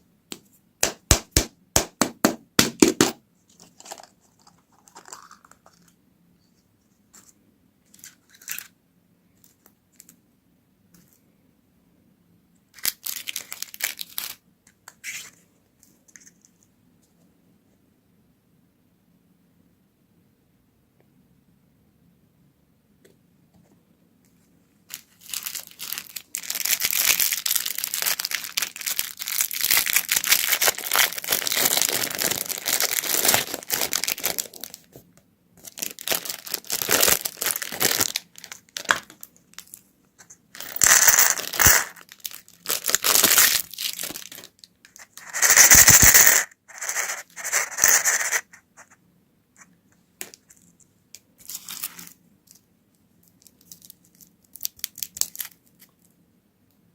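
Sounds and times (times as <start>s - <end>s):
candy wrappers crinkling: 2.7s - 5.9s, 12.8s - 14.4s, 24.9s - 35.0s, 35.6s - 48.9s, 53.2s - 56.1s.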